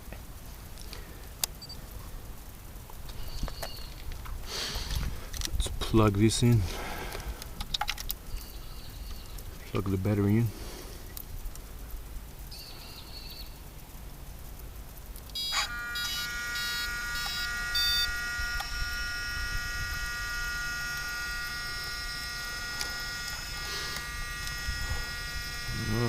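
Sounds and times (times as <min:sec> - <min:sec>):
servos whining: 0:15.3 - 0:26.0
short high beeps: 0:15.4 - 0:18.8.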